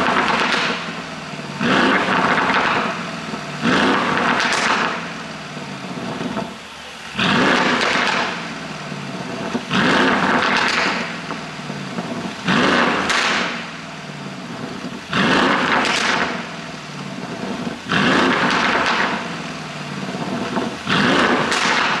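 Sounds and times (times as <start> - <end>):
car engine revving: 0.0 - 22.0
exhaust pops and crackles: 0.0 - 22.0.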